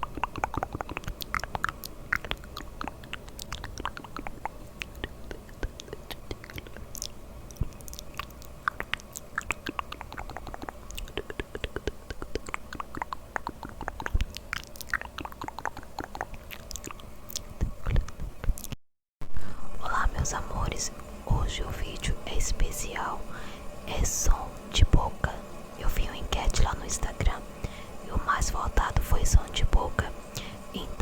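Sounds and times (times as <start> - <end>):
wet mouth clicks and smacks: 0.0 - 18.8.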